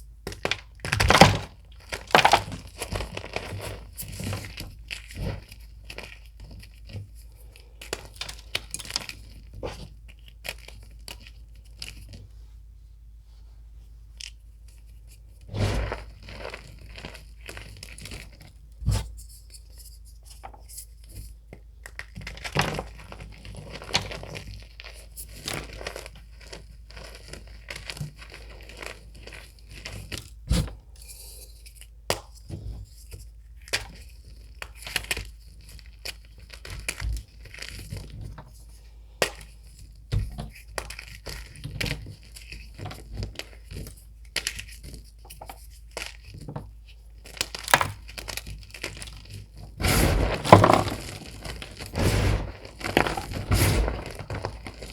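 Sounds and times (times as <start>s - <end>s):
chalk crunching and crackling: 47.2s - 54.9s.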